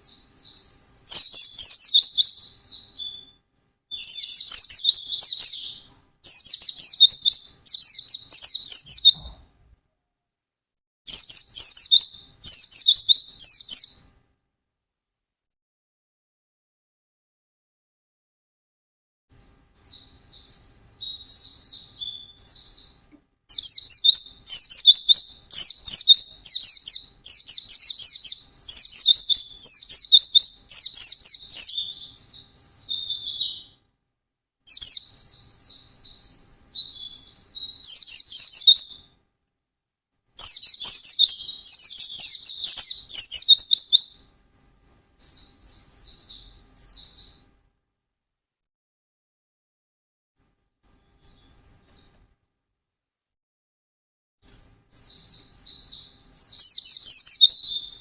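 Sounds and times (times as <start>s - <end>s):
bird warbling song: 0.0s - 9.4s, 11.1s - 14.2s, 19.3s - 33.8s, 34.7s - 39.1s, 40.4s - 47.5s, 54.4s - 58.0s.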